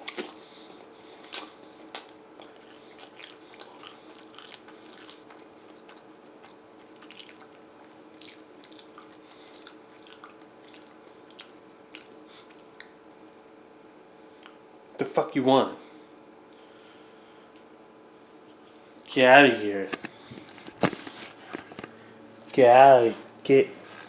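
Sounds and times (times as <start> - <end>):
person chewing food: 0.0 - 13.0
faint hum: 0.0 - 24.0.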